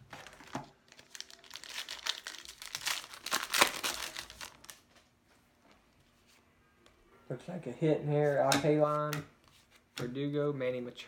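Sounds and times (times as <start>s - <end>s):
foil wrapper crinkling: 0.2s - 4.8s.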